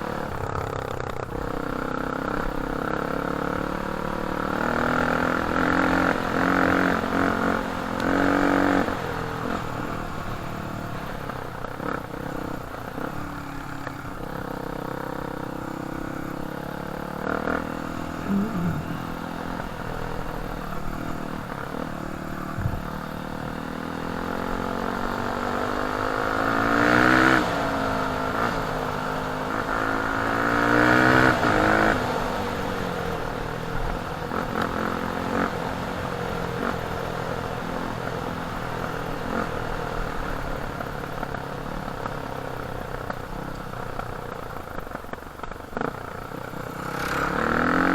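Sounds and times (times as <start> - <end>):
dirt bike engine revving: 0.0 - 32.8, 46.6 - 47.9.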